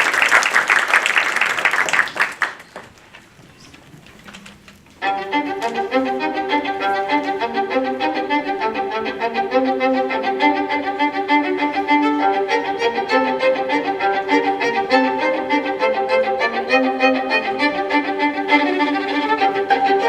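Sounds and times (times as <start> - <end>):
fast violin music: 5.0 - 20.0.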